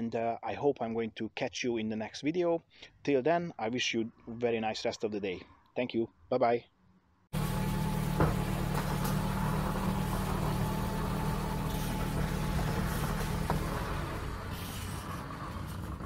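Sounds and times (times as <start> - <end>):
diesel car engine idling: 7.4 - 16.0.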